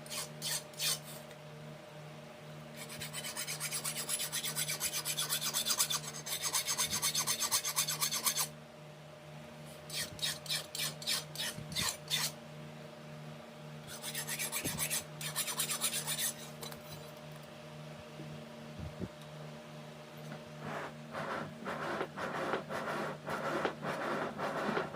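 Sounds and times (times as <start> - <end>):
file scraping back and forth: 0.0 - 1.2, 2.8 - 8.5, 9.8 - 12.4, 13.9 - 17.0, 20.6 - 24.9.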